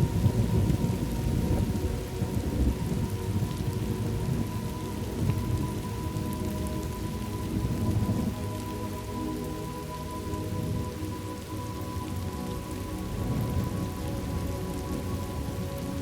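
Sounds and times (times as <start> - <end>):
low rolling thunder: 0.0 - 6.4
steady rain: 0.0 - 16.0.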